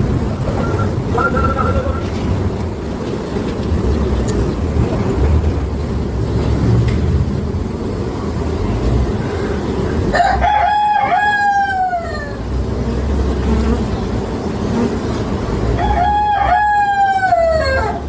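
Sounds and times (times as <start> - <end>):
steady low rumble: 0.0 - 10.2
long falling calls: 9.2 - 12.6.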